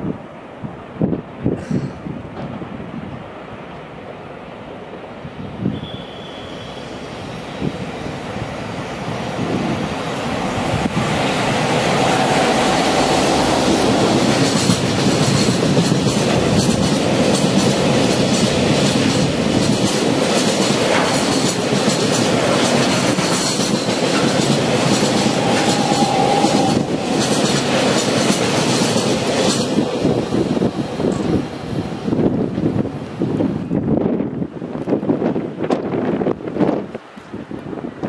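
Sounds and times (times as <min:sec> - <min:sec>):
freight train rumbling past: 0:00.0 - 0:38.0
faint wheel squeal: 0:05.7 - 0:07.0
wheels clickety-clack: 0:13.8 - 0:30.0.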